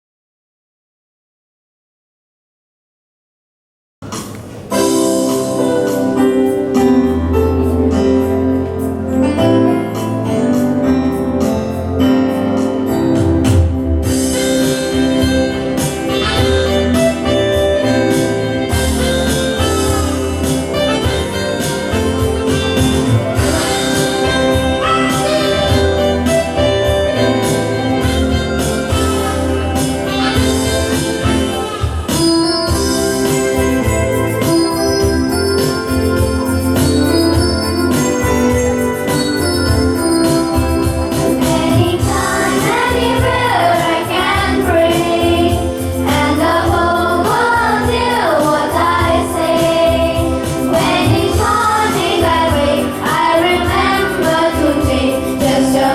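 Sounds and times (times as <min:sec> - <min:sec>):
music with bass and beat: 0:12.7 - 0:55.9.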